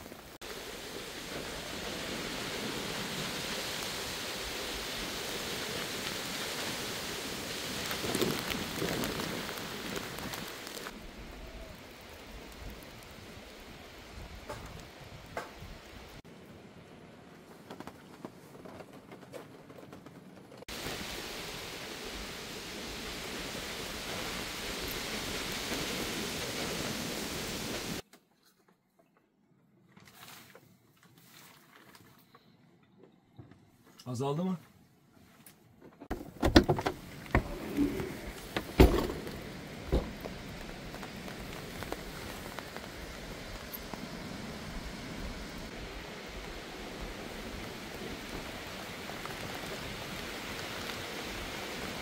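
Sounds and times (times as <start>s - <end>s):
faint hiss: 0.0s - 16.2s, 20.7s - 28.0s
storm wind: 0.0s - 18.8s, 20.2s - 28.0s, 36.3s - 52.0s
steady rain: 0.0s - 28.0s, 36.4s - 52.0s
sharp knocks and clunks: 38.5s - 40.2s.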